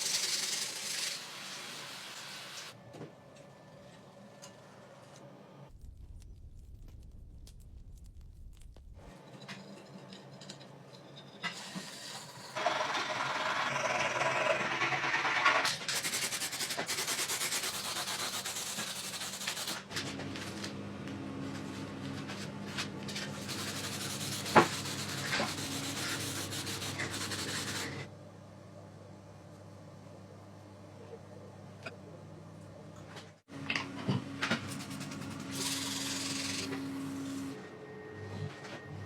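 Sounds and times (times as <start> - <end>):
sanding metal: 15.9 - 19.8, 23.3 - 28.1.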